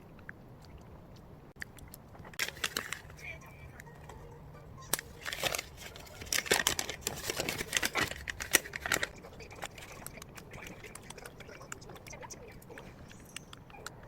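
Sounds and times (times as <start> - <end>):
objects clicking and rustling: 1.7 - 3.3, 4.9 - 11.4.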